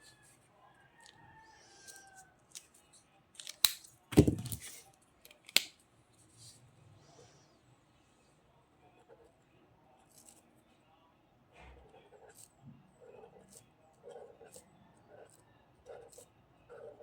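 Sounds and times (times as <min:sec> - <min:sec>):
scissors snipping paper: 0:03.4 - 0:05.7
knock on table: 0:04.1 - 0:04.6.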